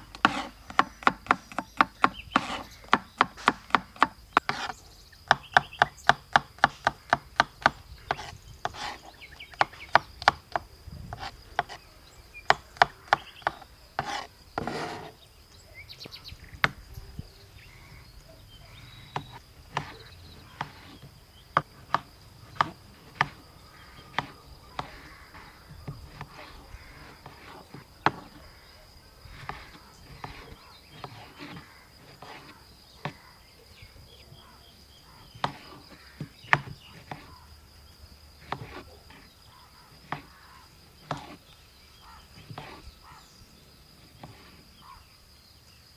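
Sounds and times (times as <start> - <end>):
knife scraping board: 0.2 - 3.8, 4.4 - 4.8, 8.1 - 9.7, 12.5 - 15.2, 29.4 - 33.2, 38.4 - 39.3, 41.0 - 41.4, 42.4 - 42.9.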